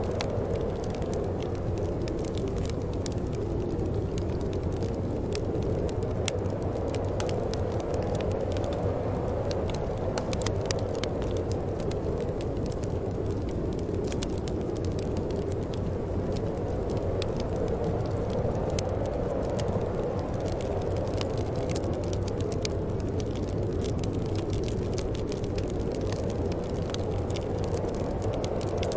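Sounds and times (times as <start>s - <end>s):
wood fire crackling: 0.0s - 28.9s.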